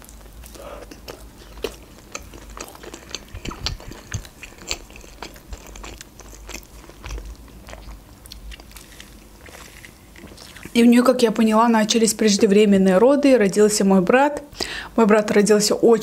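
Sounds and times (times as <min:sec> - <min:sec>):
crunchy chewing: 0:00.0 - 0:10.8.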